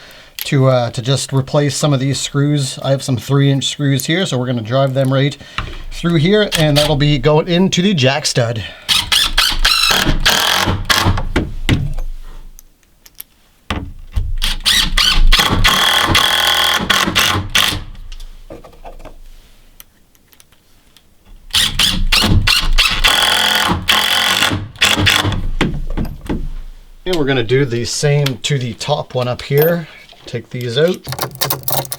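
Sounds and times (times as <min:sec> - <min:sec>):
cordless screwdriver whining: 0:14.4 - 0:17.8.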